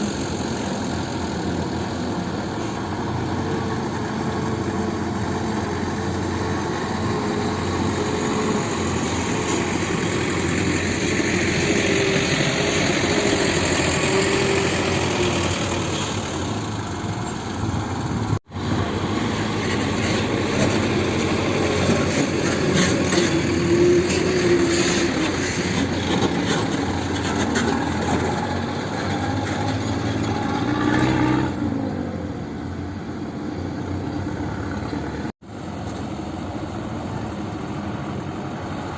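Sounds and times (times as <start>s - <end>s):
heavy diesel engine running: 0.0s - 30.4s.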